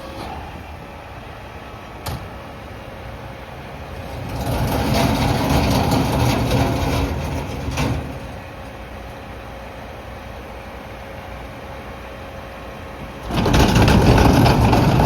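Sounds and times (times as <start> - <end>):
garbage truck diesel engine: 0.0 - 15.0
clunk: 4.2 - 8.5, 13.2 - 15.0
mechanical clatter: 13.2 - 15.0.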